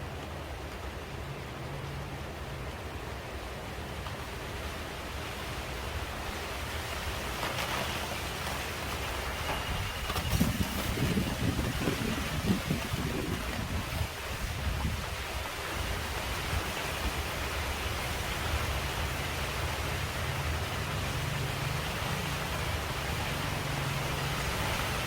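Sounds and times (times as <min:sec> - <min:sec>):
rain falling on leaves: 0:00.0 - 0:25.0.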